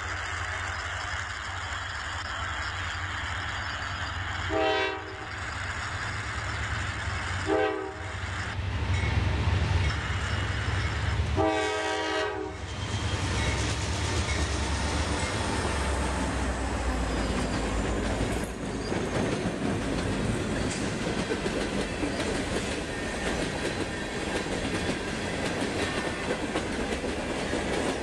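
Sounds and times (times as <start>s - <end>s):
freight train locomotives rumbling: 0.0s - 28.0s
locomotive air horn blasts: 4.5s - 5.2s, 7.5s - 8.1s, 11.4s - 12.7s.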